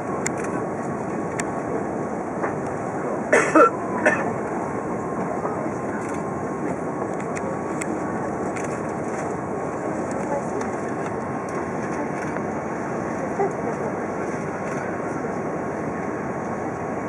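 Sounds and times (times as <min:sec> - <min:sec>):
airliner cabin noise: 0:00.0 - 0:17.0
faint steady whine: 0:00.0 - 0:17.0
person coughing: 0:03.3 - 0:04.3.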